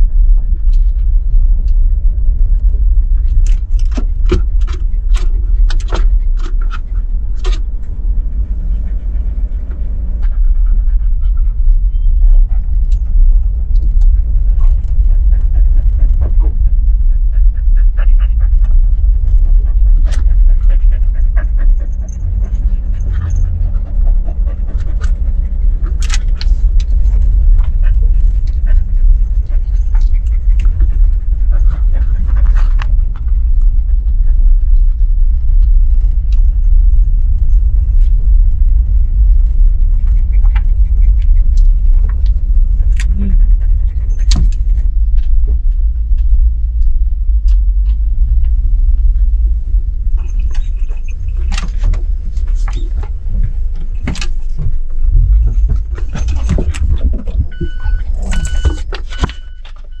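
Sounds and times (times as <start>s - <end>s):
truck engine and road noise: 0.0s - 60.0s
clicks and rattles: 2.5s - 8.4s.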